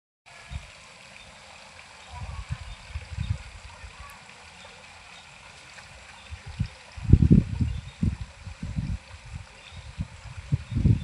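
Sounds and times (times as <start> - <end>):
outdoor hiss: 0.3 - 11.0
low rumbles on microphone: 2.2 - 4.0, 6.3 - 11.0.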